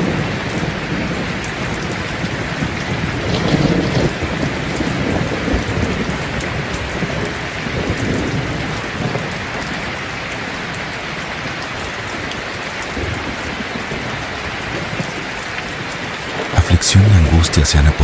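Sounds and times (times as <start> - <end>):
thunder rumbling: 0.0 - 10.0
rain falling: 0.0 - 18.0.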